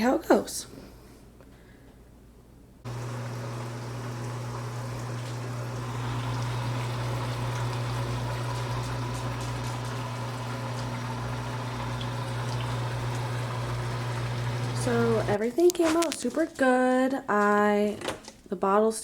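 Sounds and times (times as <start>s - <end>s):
pump humming: 2.8s - 15.4s
water spraying and splashing: 2.9s - 15.4s.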